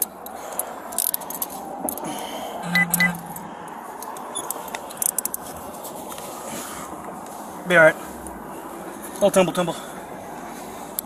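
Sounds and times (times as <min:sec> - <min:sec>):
street traffic noise: 0:00.0 - 0:11.0
short beeps: 0:02.6 - 0:03.6.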